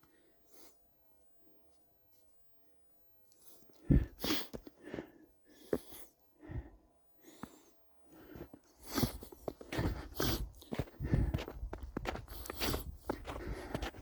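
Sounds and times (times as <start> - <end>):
footsteps in snow: 8.4 - 14.0.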